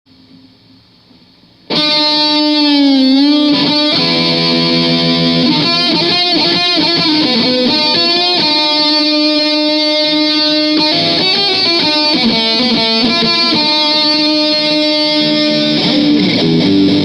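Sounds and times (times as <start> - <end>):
faint amp hum: 0.1 - 17.0
distorted electric guitar lead: 1.6 - 17.0.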